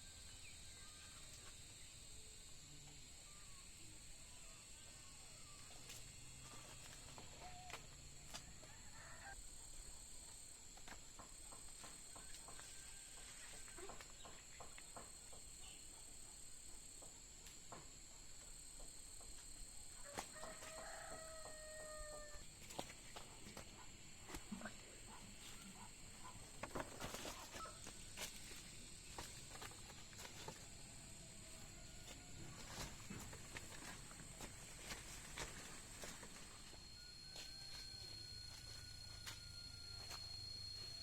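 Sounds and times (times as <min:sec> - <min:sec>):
rooster crowing: 0:07.3 - 0:09.4, 0:20.0 - 0:22.5, 0:31.0 - 0:34.0, 0:36.0 - 0:41.0
steady high-pitched drone: 0:24.5 - 0:41.0.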